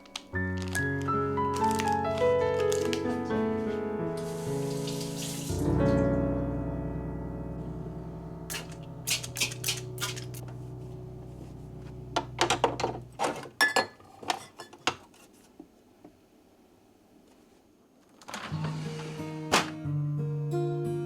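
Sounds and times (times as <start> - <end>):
dishes and utensils clinking: 8.5 - 10.4.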